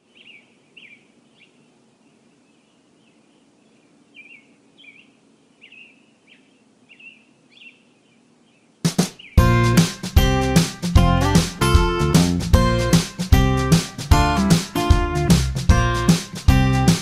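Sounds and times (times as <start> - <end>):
faint birds chirping: 0.0 - 11.6
soft outdoor hiss: 0.0 - 17.0.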